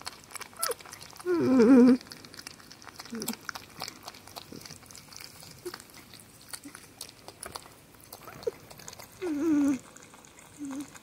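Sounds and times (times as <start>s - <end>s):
porcupine chewing with clicks: 0.0s - 11.0s
porcupine squeaking: 8.1s - 9.8s.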